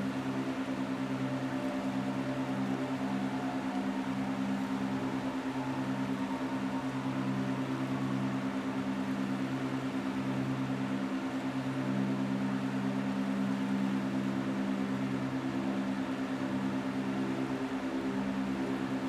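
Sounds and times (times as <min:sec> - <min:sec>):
low humming drone: 0:00.0 - 0:19.0.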